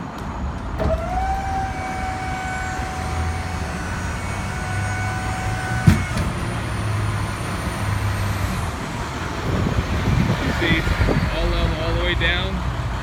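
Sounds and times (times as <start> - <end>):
diesel engine idling: 0.0 - 13.0
hydraulic liftgate whining: 0.2 - 11.9
liftgate clunk: 5.5 - 7.6.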